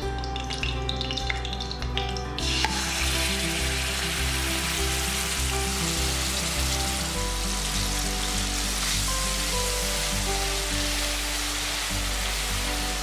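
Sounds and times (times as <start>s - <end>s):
background music: 0.0s - 13.0s
chilli paste sizzling in oil: 2.4s - 13.0s.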